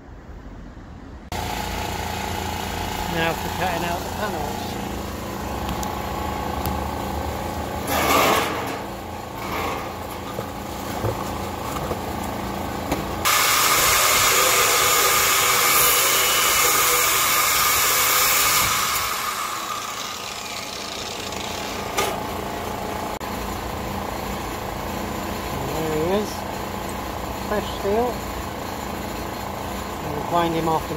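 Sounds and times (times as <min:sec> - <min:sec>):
power tool cutting metal hiss: 0:13.3 - 0:22.0.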